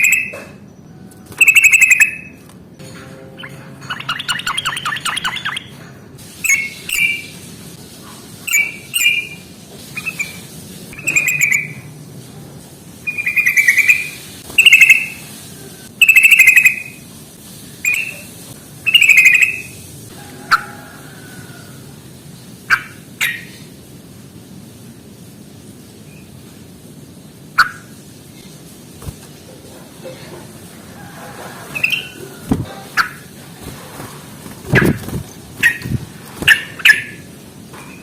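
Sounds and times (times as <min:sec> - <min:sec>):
bird chattering calls: 0:01.4 - 0:02.4, 0:11.0 - 0:11.8, 0:13.1 - 0:15.2, 0:16.0 - 0:17.0, 0:35.6 - 0:37.3.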